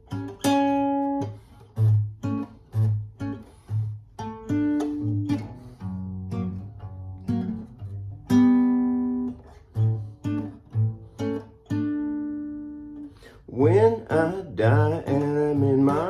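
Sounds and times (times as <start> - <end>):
fingerpicked acoustic guitar: 0.0 - 16.0.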